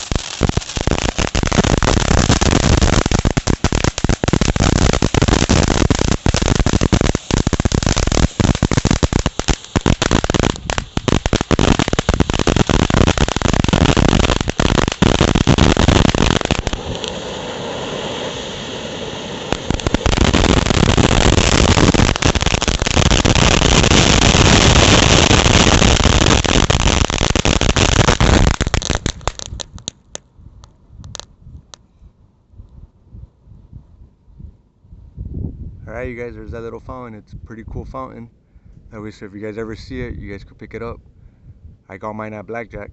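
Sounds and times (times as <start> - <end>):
firework hissing: 0.0 - 29.9
firework crackling and popping: 0.0 - 31.8.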